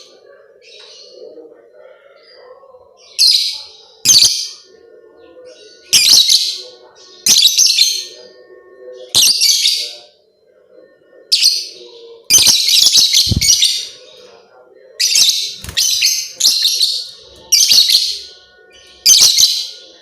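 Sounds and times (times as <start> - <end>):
lovebird shrill chattering: 12.4 - 13.9.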